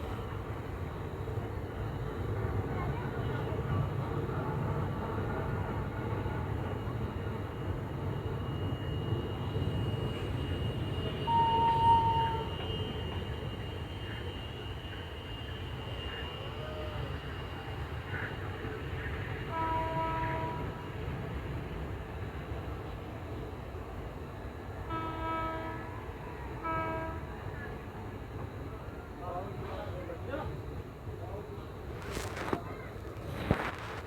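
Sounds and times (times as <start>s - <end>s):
train wheels rumbling on rails: 0.0s - 34.0s
multi-tone train horn: 8.0s - 21.4s, 24.5s - 28.2s
train horn blast: 9.9s - 14.8s, 19.4s - 20.9s, 24.8s - 27.7s.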